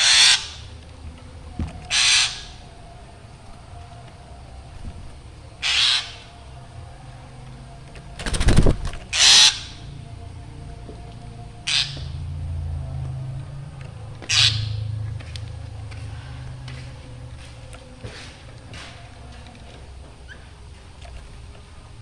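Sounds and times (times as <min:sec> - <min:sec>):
bird giving harsh calls: 0:00.0 - 0:00.7, 0:01.9 - 0:02.6, 0:05.6 - 0:06.4, 0:09.1 - 0:09.8, 0:11.6 - 0:12.2, 0:14.2 - 0:14.9.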